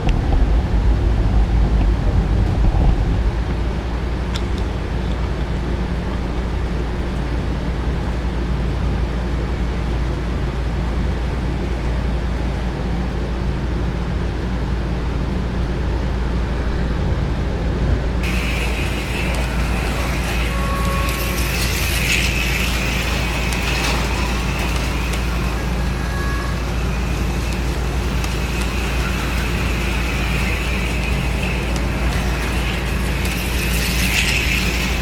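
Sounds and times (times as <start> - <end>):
high whirring with clicking: 0.0 - 35.0
model train motors rumbling: 0.0 - 35.0.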